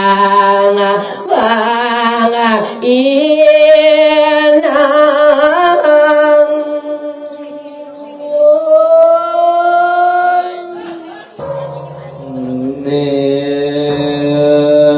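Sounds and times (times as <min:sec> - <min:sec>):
low chant-like sound: 0:05.7 - 0:14.9
person singing long wavering notes: 0:11.4 - 0:14.9.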